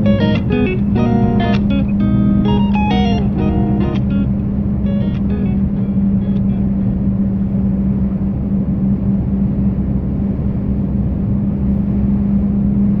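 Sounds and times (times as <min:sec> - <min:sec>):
truck engine running: 0:00.0 - 0:09.4.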